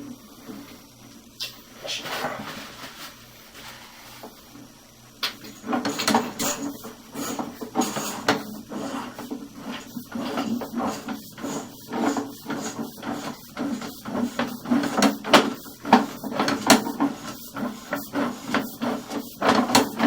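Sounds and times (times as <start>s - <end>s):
cable scraping and knocking in drain: 5.4s - 20.0s.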